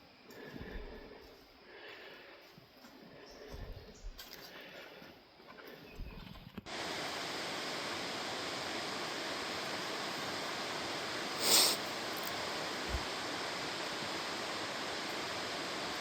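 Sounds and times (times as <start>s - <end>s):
water rushing: 6.7s - 16.0s.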